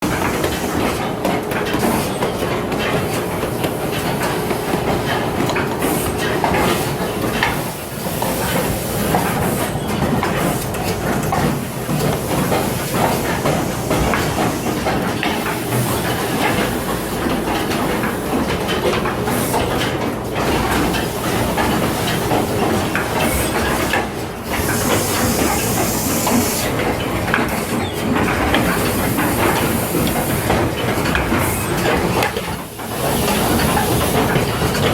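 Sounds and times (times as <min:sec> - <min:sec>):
machine clattering and clicking: 0:00.0 - 0:34.9
hisses of air: 0:12.0 - 0:16.7, 0:24.4 - 0:26.9.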